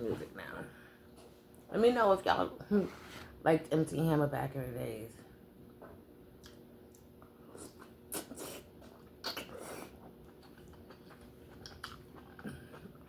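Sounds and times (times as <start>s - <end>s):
crunchy chewing: 7.6s - 13.0s.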